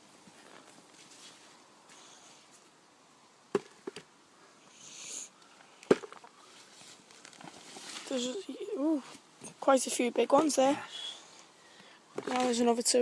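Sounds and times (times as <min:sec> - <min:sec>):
earth scraping rustle: 0:00.3 - 0:02.6, 0:06.2 - 0:11.0, 0:12.2 - 0:13.0.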